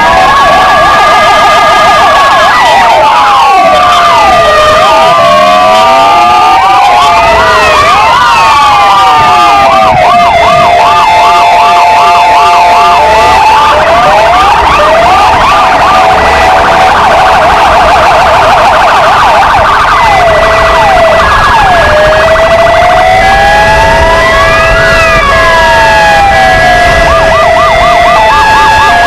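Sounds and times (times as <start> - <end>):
police sirens: 0.0 - 29.0.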